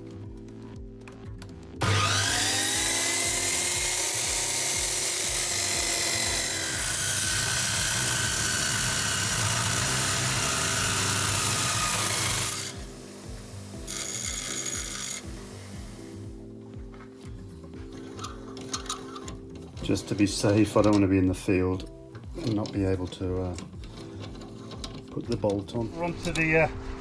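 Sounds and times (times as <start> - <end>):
power tool whining: 1.8 - 17.2.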